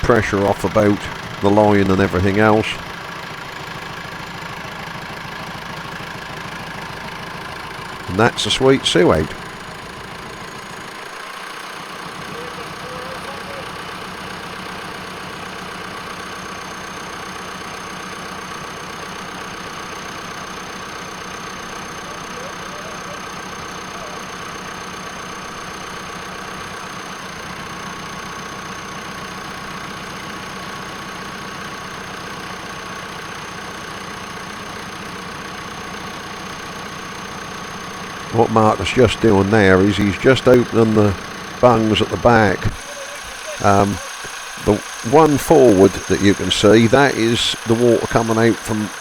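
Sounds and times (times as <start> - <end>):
engine idling: 0.0 - 49.0
faint high whine: 38.3 - 49.0.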